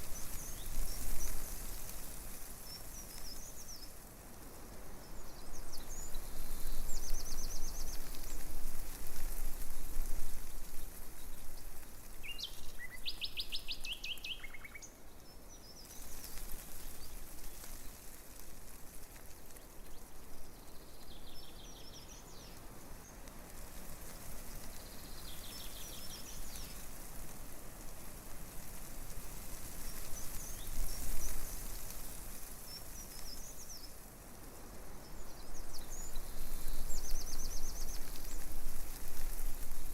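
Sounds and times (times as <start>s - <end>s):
songbirds trilling and chirping: 0.0s - 27.6s, 28.5s - 39.9s
breeze rustling tree leaves: 0.0s - 39.9s.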